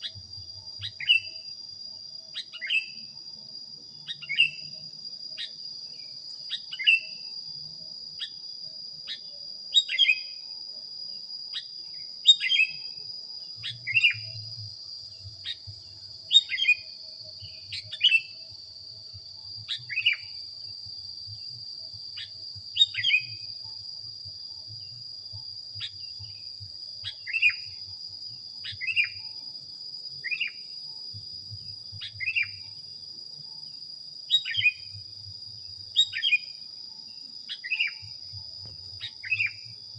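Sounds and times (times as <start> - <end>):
high insect-like whine: 0.0 - 39.9
bird chirping: 11.6 - 12.9, 13.6 - 14.4, 16.3 - 18.4, 19.7 - 20.4, 22.2 - 23.4, 27.0 - 27.7, 28.6 - 29.2, 32.0 - 32.6, 34.3 - 35.0, 36.0 - 36.5, 37.5 - 38.1, 39.0 - 39.7.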